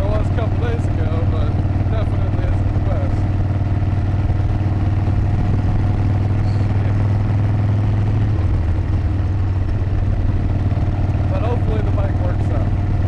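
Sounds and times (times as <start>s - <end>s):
motorcycle engine running: 0.0s - 13.0s
wind noise: 4.2s - 10.6s.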